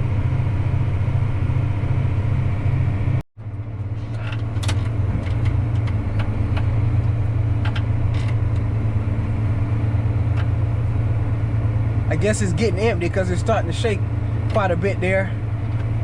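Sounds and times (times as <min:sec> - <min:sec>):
tractor engine under load: 0:00.0 - 0:16.0.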